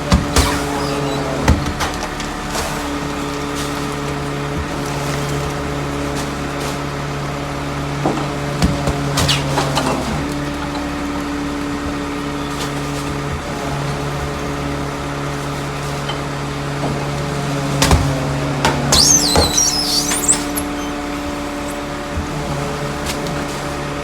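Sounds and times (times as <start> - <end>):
loading mechanism knocks and squeaks: 0.0 - 2.3, 17.8 - 21.9
garbage truck engine humming: 0.0 - 24.0.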